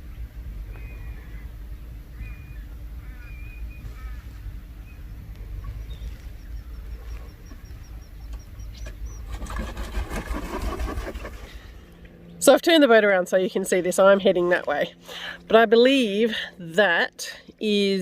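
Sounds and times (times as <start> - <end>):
wild birds calling: 0.0 - 12.4
low steady rumble: 0.0 - 18.0
canoe paddle splashing water: 9.3 - 11.5.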